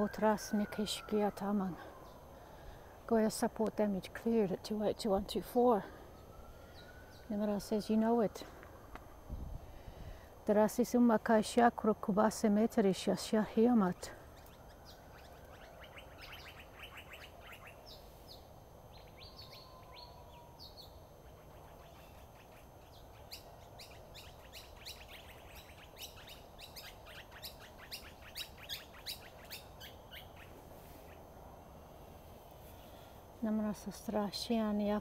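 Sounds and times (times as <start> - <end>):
faint steady hum: 0.0 - 35.0
birds chirping: 13.9 - 31.3.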